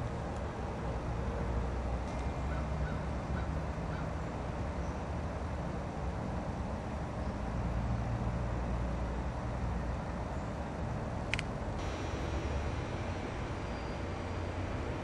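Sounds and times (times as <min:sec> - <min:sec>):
low outdoor rumble: 0:11.8 - 0:15.0.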